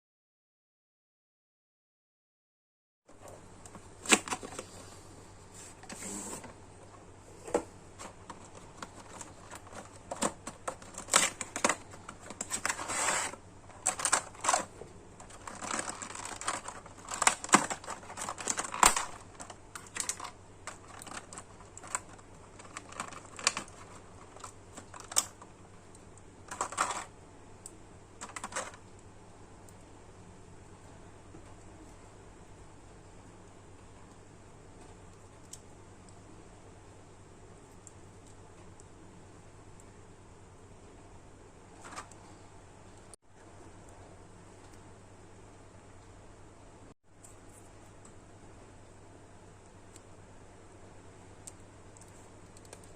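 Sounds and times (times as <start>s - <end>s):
plastic parts clicking and scraping: 3.3s - 4.8s, 7.4s - 25.5s, 26.4s - 27.1s, 28.2s - 28.9s.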